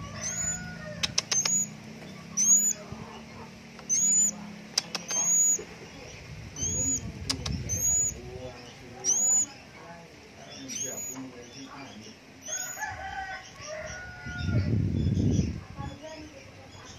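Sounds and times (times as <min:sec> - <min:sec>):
sharp clicks: 0:01.0 - 0:01.6, 0:04.7 - 0:05.2.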